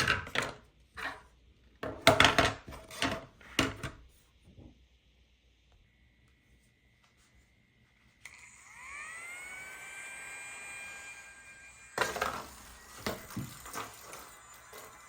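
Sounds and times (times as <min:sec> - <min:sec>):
plastic clacks and knocks: 0:00.0 - 0:00.6, 0:01.8 - 0:04.0
electric fan motor humming: 0:05.8 - 0:15.0.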